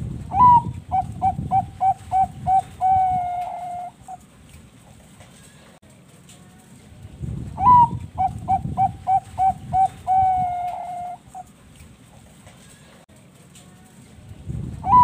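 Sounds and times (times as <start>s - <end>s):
dove cooing: 0.3s - 4.2s, 7.6s - 11.5s.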